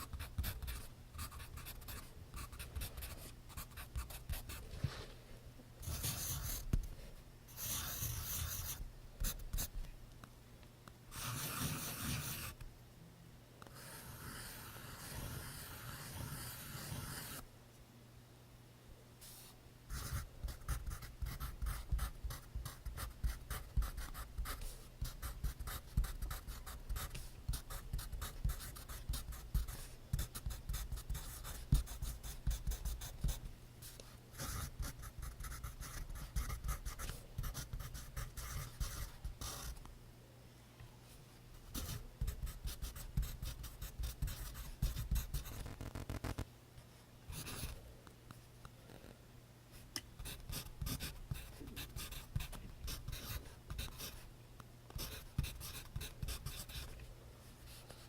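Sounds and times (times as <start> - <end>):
pencil scratching on paper: 0.0 - 4.6, 5.8 - 6.7, 7.6 - 9.7, 11.1 - 12.6, 13.8 - 17.4, 19.9 - 33.4, 34.4 - 39.8, 41.7 - 46.3, 50.2 - 54.2, 55.0 - 56.9.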